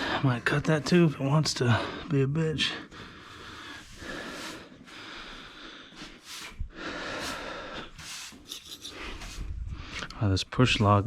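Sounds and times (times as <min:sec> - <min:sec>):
person breathing hard: 0:00.0 - 0:00.3, 0:02.8 - 0:10.2.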